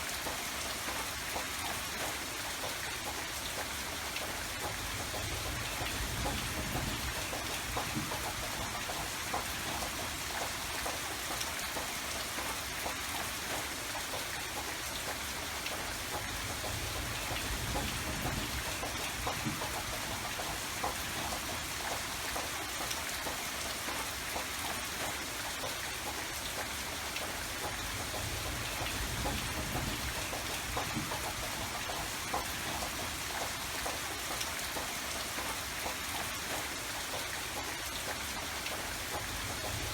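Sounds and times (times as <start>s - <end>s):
rain drops pattering: 0.0s - 39.9s.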